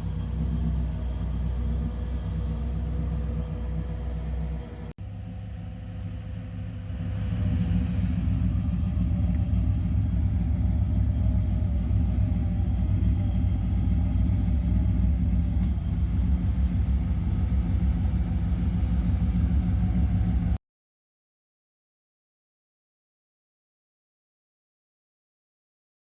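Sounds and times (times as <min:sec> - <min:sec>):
car engine rumbling: 0:00.0 - 0:20.6.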